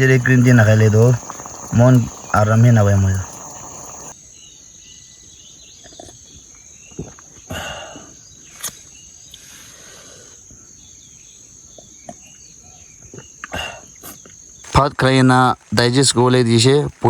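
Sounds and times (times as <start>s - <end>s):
insects chirring: 0.0s - 4.2s.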